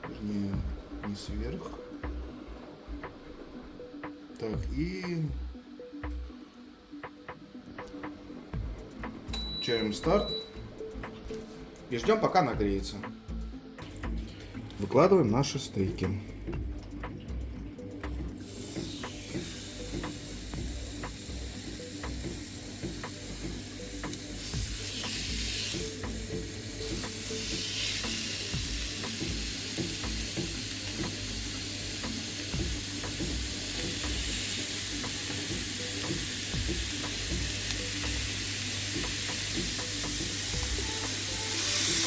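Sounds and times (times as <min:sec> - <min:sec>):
meat sizzling on a grill: 0:18.2 - 0:42.0.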